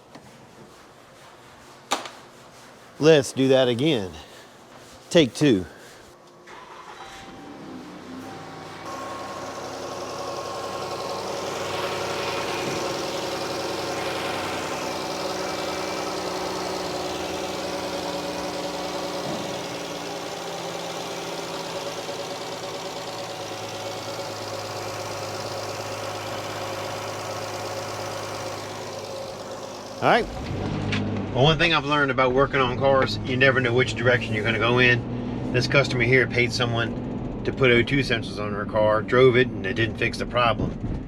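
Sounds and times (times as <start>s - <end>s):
minivan engine idling: 6.5s - 30.6s.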